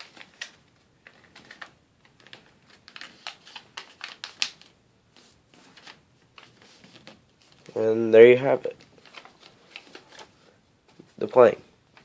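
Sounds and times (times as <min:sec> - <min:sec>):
paper crackling and rustling: 0:00.0 - 0:07.8, 0:08.7 - 0:10.4.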